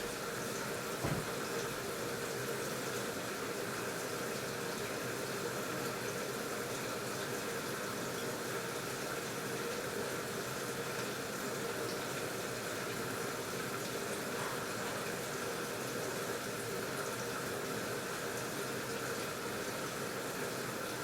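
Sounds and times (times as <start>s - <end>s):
water rushing into washing machine: 0.0s - 4.8s.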